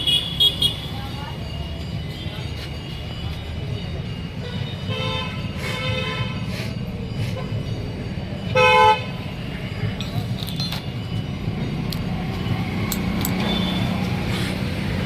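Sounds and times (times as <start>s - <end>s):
road traffic rumble: 0.0s - 15.0s
vehicle horn toot: 8.5s - 9.2s.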